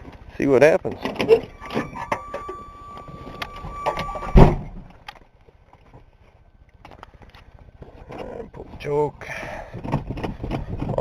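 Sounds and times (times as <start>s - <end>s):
steady high-pitched tone: 1.3s - 4.7s.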